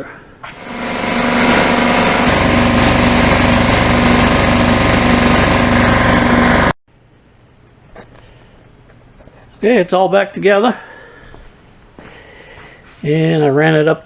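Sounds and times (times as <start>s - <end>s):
air compressor running: 0.4s - 6.8s.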